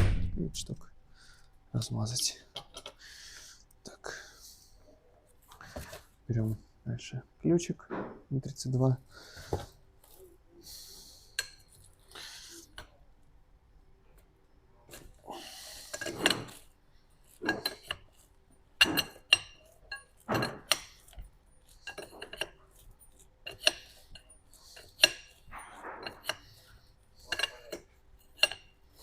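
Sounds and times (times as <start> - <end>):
wrench clinking on metal: 17.3 - 29.0.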